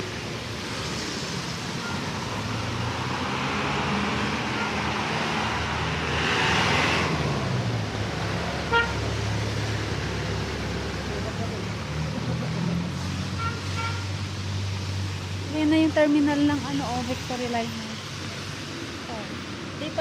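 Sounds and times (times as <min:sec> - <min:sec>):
vehicle passing: 0:00.7 - 0:20.0
car horn beep: 0:08.7 - 0:09.0, 0:13.4 - 0:14.1.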